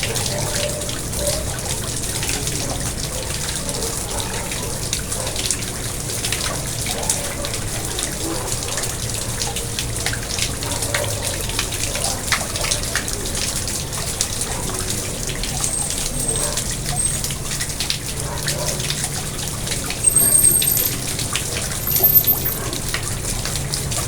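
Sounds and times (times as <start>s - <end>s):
water splashing into pond: 0.0s - 24.0s.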